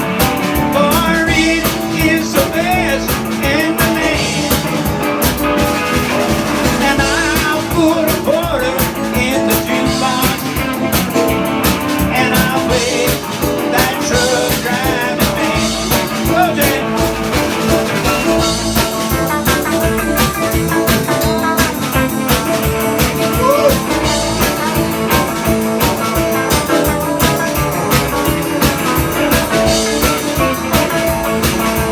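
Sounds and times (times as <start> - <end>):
drums: 0.0 - 31.9
electric guitar: 0.0 - 31.9
live country-rock band: 0.0 - 31.9
person singing: 0.6 - 4.8, 6.8 - 10.9, 12.0 - 17.2, 23.2 - 24.4.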